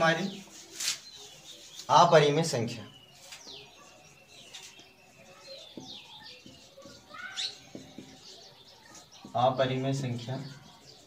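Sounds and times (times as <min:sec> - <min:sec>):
faint small birds chirping: 0:00.0 - 0:11.0
marker tapping on whiteboard: 0:05.6 - 0:09.4.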